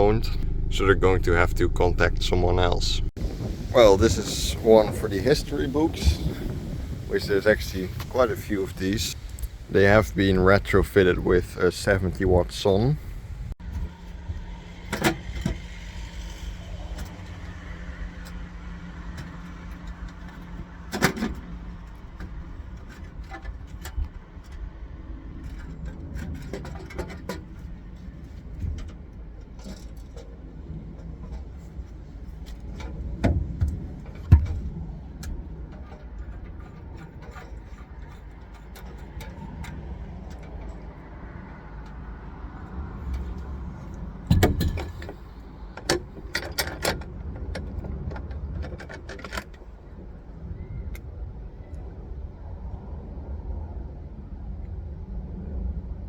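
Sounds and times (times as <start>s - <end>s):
steady low rumble: 0.0s - 56.0s
clicks and rattles: 18.2s - 49.9s.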